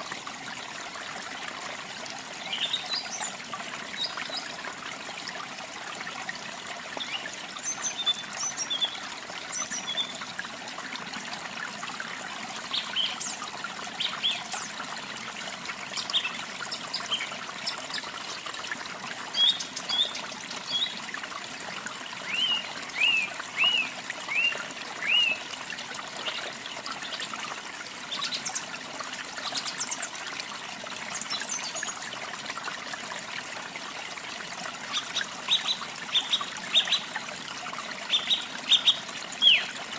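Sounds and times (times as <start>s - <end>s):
water trickling: 0.0s - 39.9s
songbirds chirping: 38.1s - 39.8s.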